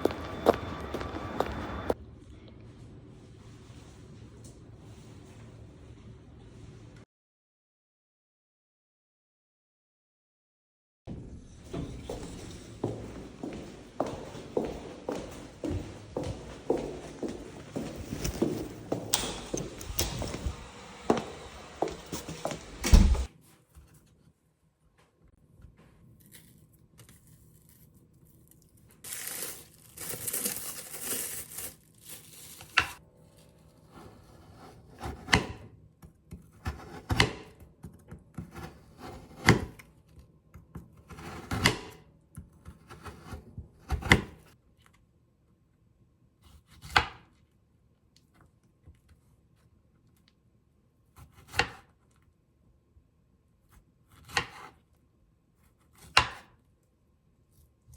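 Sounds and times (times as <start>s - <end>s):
rustling tearing sound: 26.2s - 33.7s.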